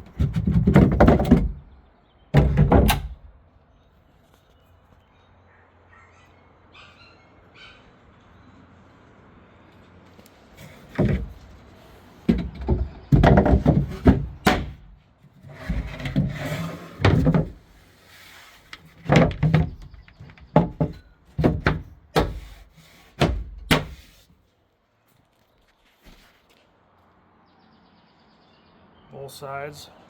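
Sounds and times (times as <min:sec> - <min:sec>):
wooden doors and drawers knocking: 0:00.0 - 0:01.8, 0:02.4 - 0:03.2, 0:10.9 - 0:11.4, 0:12.3 - 0:14.9, 0:15.6 - 0:17.6, 0:19.1 - 0:22.5, 0:23.2 - 0:24.0
drawers sliding scrapes: 0:10.6 - 0:12.3, 0:15.4 - 0:19.2.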